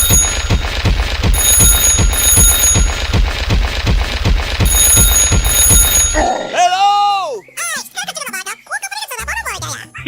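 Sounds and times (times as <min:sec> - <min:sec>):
high electronic alarm beeping: 0:00.0 - 0:03.6, 0:04.6 - 0:06.6
pulsing low thumps: 0:00.0 - 0:06.6.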